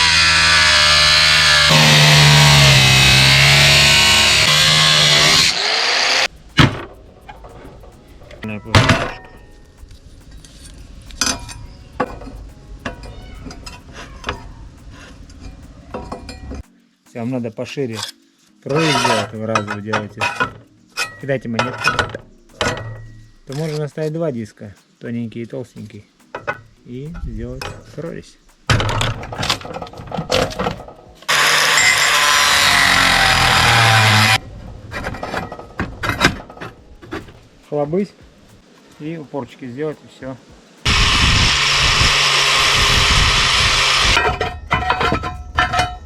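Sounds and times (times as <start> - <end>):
angle grinder cutting metal: 0.0 - 6.3, 18.7 - 19.3, 31.3 - 34.4, 40.9 - 45.1
sheet metal clinking and knocking: 6.5 - 9.7, 18.9 - 23.2, 26.3 - 26.7, 28.7 - 32.2, 34.9 - 37.4, 44.2 - 46.0.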